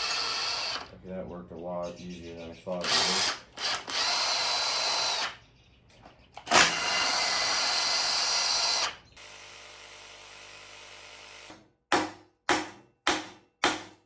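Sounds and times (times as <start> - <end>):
power drill running: 0.0 - 0.9, 2.7 - 5.4, 6.4 - 11.6.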